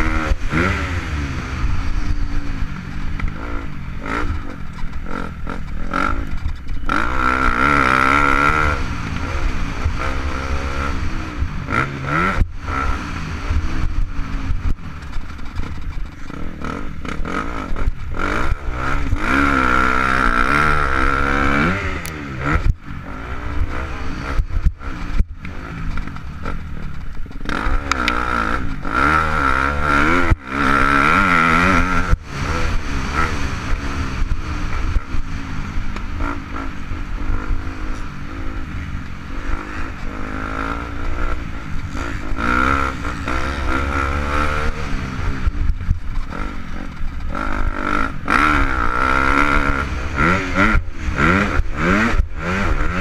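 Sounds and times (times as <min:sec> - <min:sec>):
motocross engine revving: 0:00.0 - 0:53.0
knocks and clatter: 0:04.3 - 0:07.0, 0:14.6 - 0:18.2, 0:24.4 - 0:28.9.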